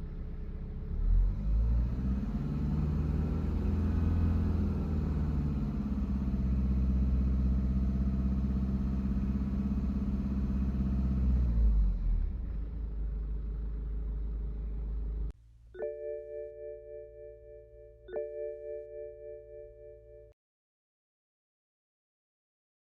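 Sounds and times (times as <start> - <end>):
diesel engine running: 0.0 - 15.3.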